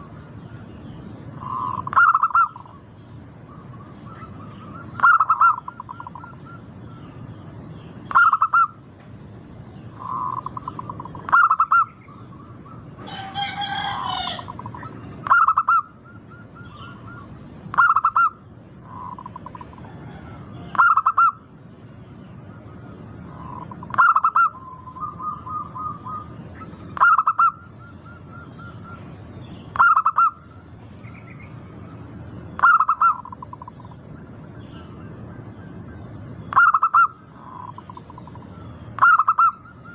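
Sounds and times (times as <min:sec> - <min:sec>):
longer bird call: 0:00.0 - 0:08.9, 0:09.8 - 0:39.9
dove cooing: 0:01.4 - 0:02.8, 0:03.5 - 0:07.0, 0:08.1 - 0:08.8, 0:09.9 - 0:21.4, 0:22.7 - 0:29.1, 0:29.7 - 0:30.6, 0:32.6 - 0:34.0, 0:36.5 - 0:39.9.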